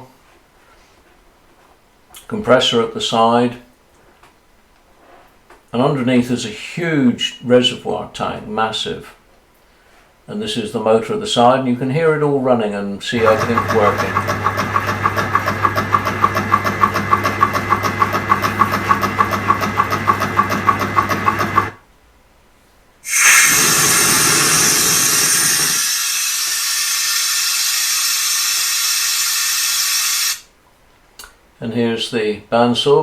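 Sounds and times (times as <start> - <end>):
air compressor pulsing hum: 13.2 - 21.8, 23.0 - 30.5
compressed air hissing out: 23.0 - 30.5.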